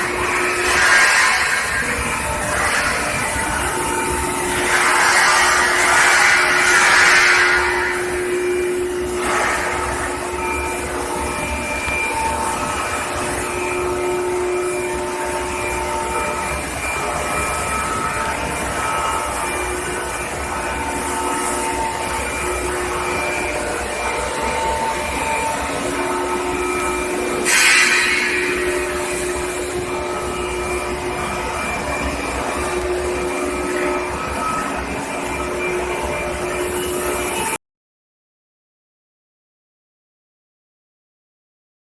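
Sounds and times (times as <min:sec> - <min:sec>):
faint whining tones: 0:00.0 - 0:37.6
machinery hum and hiss: 0:00.0 - 0:37.6.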